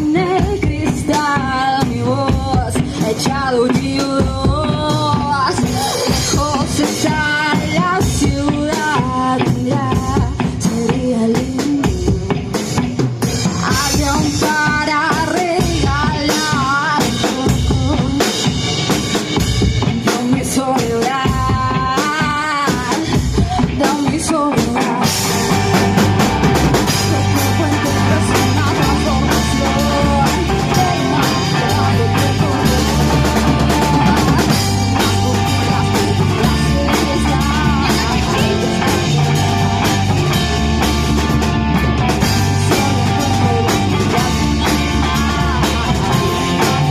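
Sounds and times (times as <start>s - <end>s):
bending lead guitar line: 0.0s - 46.9s
drum kit with rimshots: 0.0s - 46.9s
low bass line: 25.2s - 46.9s.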